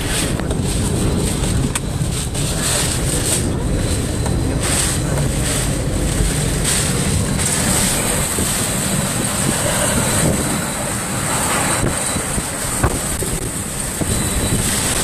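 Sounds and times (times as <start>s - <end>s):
wind and rain battering a car: 0.0s - 15.0s.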